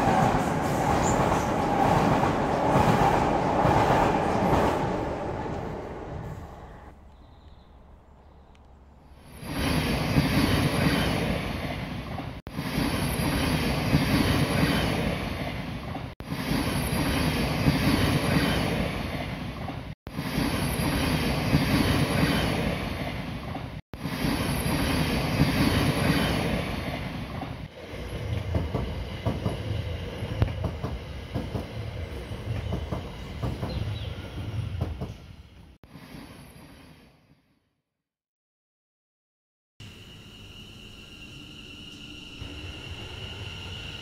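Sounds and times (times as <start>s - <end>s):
train wheels rumbling on rails: 0.0s - 7.0s, 9.3s - 36.6s
clicks of train over crossing: 20.6s - 35.3s.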